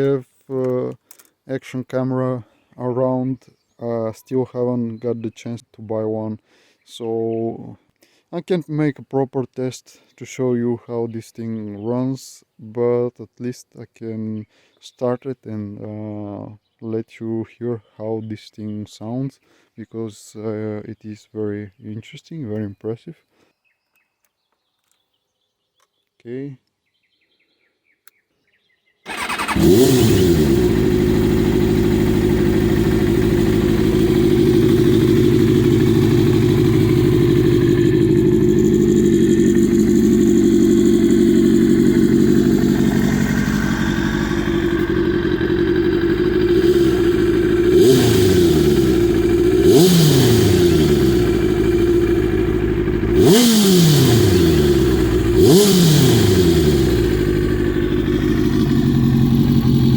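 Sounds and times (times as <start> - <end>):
motorcycle engine starting and idling: 29.1 - 59.9
motorcycle throttle blips: 29.1 - 59.9.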